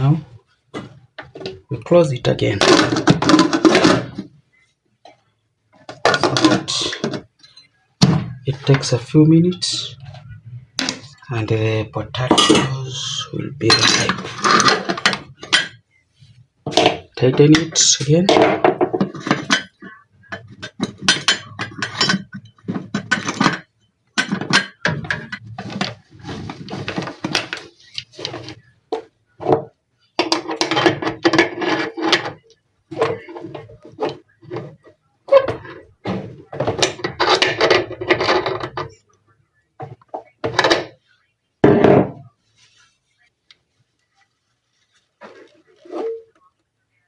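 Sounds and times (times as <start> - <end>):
people talking: 0.0 - 0.4, 1.7 - 3.0, 6.1 - 7.2, 8.4 - 14.7, 17.2 - 18.6.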